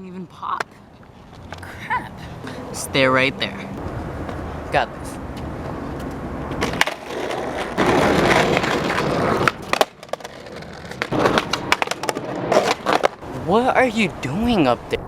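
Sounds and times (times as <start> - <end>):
skateboard wheels rolling on pavement: 0.0 - 14.9
skateboard clacking on ground: 6.0 - 13.2.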